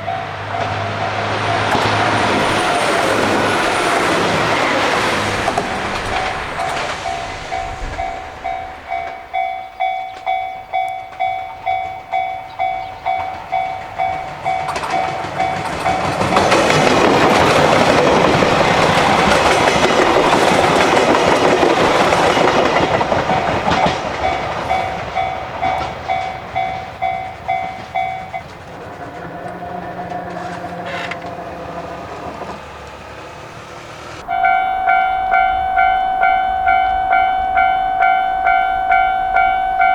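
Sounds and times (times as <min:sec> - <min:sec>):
level-crossing bell ringing: 0:00.0 - 0:02.4, 0:05.7 - 0:17.1, 0:22.3 - 0:31.0, 0:34.2 - 0:39.9
train rumble and wheel clatter: 0:00.0 - 0:39.9.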